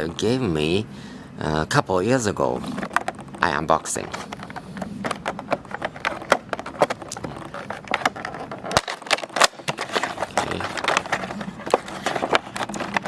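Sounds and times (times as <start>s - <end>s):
packaging crackling and rustling: 2.4s - 13.0s
packaging sharp crack: 4.0s - 13.0s.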